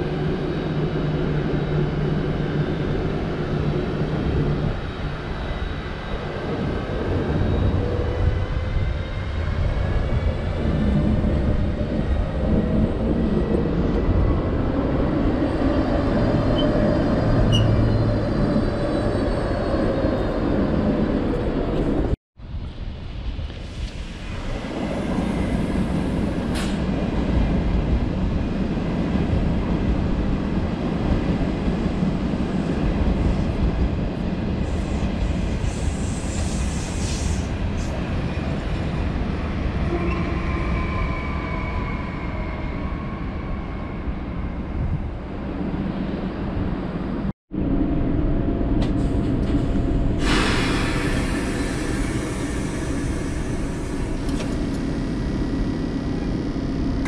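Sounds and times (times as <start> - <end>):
train rumbling: 0.0 - 57.0
loud hiss: 50.2 - 54.2.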